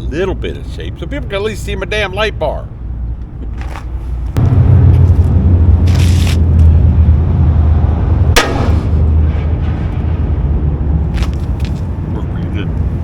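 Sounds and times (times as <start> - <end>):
loud low rumble: 4.4 - 11.0
hammer striking metal bumper: 8.4 - 9.2.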